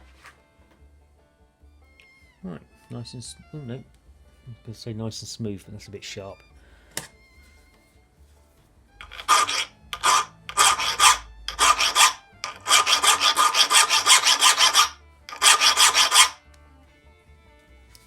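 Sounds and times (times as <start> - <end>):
hand file rasping on metal: 9.0 - 16.4.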